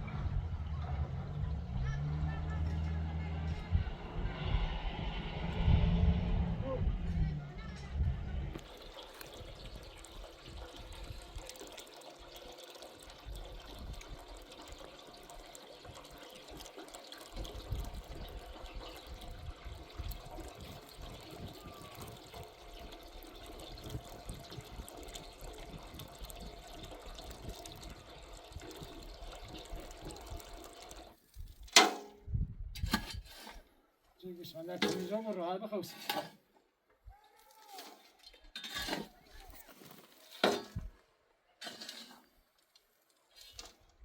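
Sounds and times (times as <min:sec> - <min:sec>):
low rumbling: 0:00.0 - 0:08.8
water running: 0:08.6 - 0:31.2, 0:34.6 - 0:36.3.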